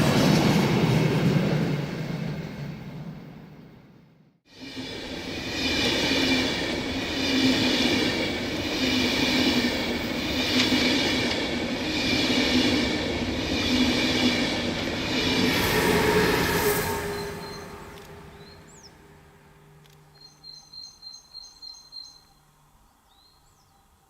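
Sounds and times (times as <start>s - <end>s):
train rumbling on rails: 0.0s - 21.6s
high ringing tones: 15.4s - 19.3s.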